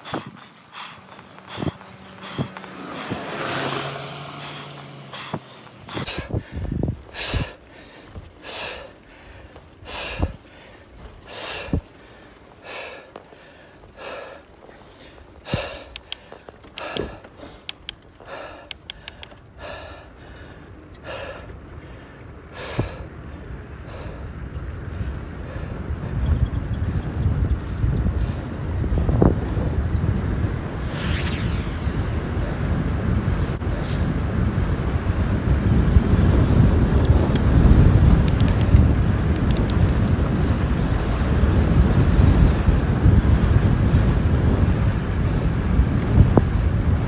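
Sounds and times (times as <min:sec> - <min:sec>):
person breathing hard: 0:00.0 - 0:26.2
wind buffeting microphone: 0:00.0 - 0:47.0.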